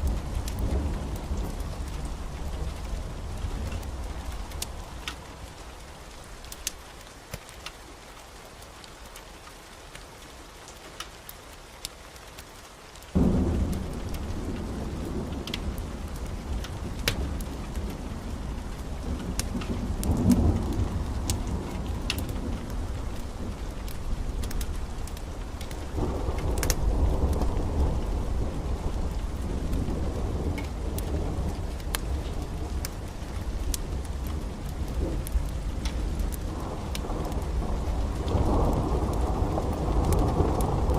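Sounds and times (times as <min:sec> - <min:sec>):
thunder rumbling: 0:00.0 - 0:05.8, 0:13.1 - 0:40.9
rain: 0:00.0 - 0:40.9
sharp crackles: 0:09.9 - 0:40.9.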